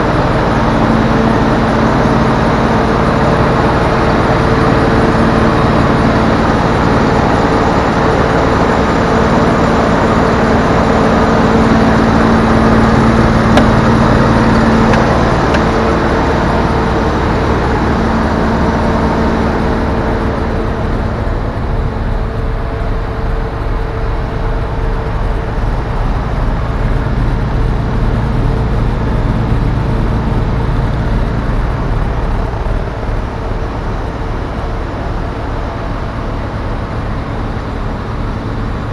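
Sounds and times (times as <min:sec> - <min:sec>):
diesel truck engine humming: 0:00.0 - 0:38.9
engine whine: 0:00.0 - 0:38.9.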